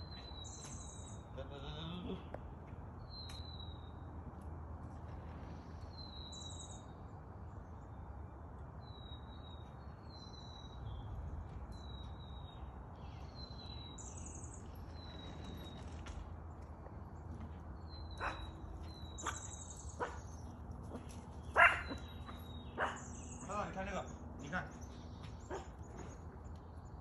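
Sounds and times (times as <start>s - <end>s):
bird calling: 17.9s - 26.2s.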